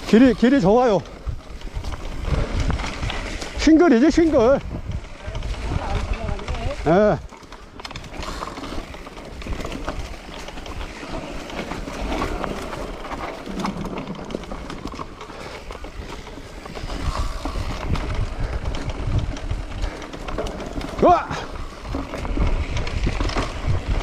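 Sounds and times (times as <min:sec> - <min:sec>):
bike rattles and clicks: 0:00.0 - 0:24.0
bike tyres on dirt: 0:00.0 - 0:24.0
wind buffeting microphone: 0:00.0 - 0:24.0.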